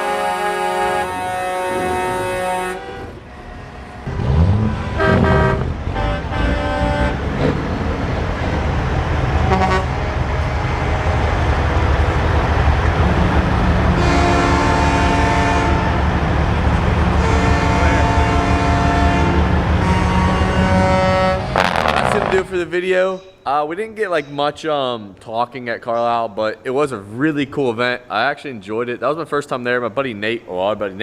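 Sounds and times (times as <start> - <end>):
air horn blasts: 0.0 - 7.3, 9.4 - 11.0, 14.0 - 16.1, 17.1 - 22.6
truck engines rumbling and revving: 0.0 - 23.0.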